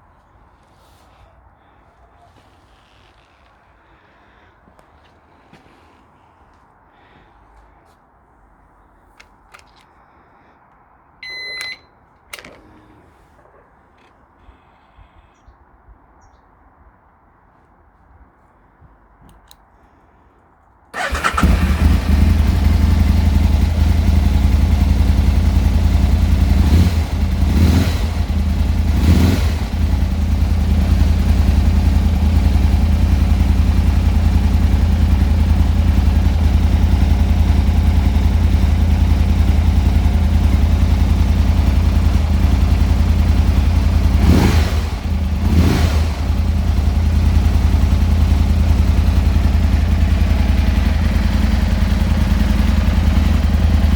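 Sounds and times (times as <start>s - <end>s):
motorcycle engine idling: 21.0s - 53.9s.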